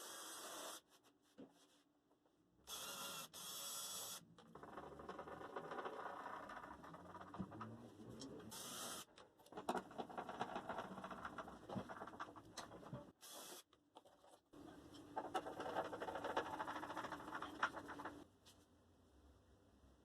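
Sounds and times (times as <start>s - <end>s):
scratching and ticking on wood: 15.4s - 18.2s.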